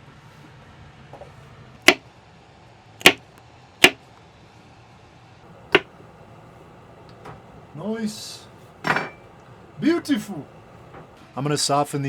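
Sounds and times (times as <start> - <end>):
knife chopping on cutting board: 5.6 - 6.1.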